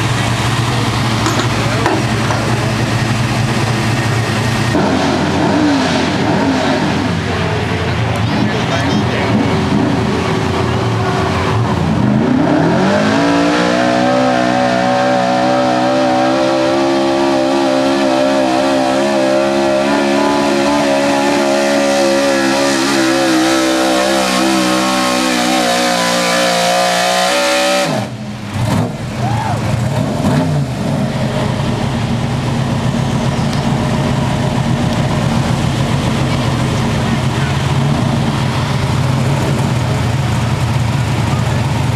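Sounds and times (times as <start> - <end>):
lower steady engine sound: 0.0 - 13.8, 27.9 - 41.9
truck engine revving high: 0.0 - 41.9.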